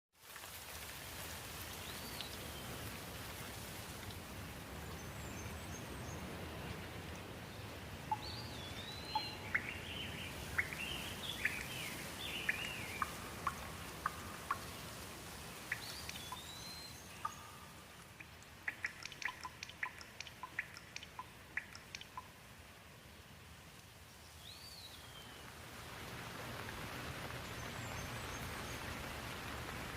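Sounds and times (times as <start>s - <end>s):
light rain: 0.2s - 29.9s
birds chirping and calling: 8.1s - 14.8s, 15.7s - 17.5s, 18.2s - 22.3s
water drops dripping: 8.1s - 14.9s, 15.6s - 22.4s.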